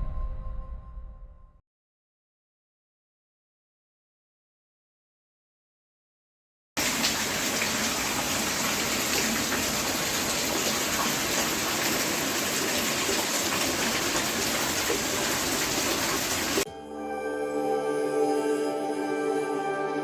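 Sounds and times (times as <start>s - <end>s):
heavy rain pouring: 6.8s - 16.6s.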